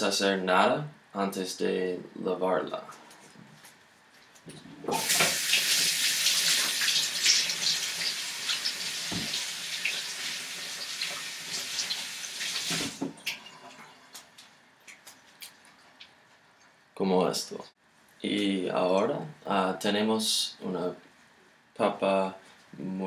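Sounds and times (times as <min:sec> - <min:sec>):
kitchen tap running: 0:04.9 - 0:13.9.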